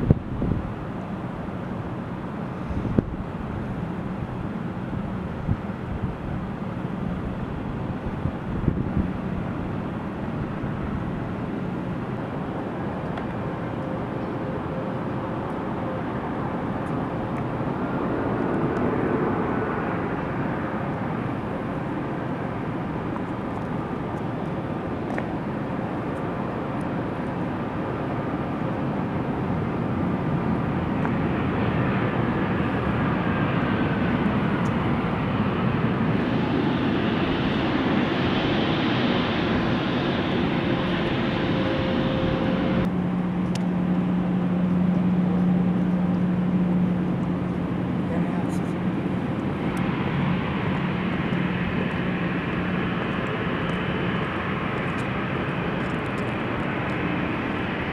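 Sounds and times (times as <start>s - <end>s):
airliner engines rumbling: 0.0s - 57.9s.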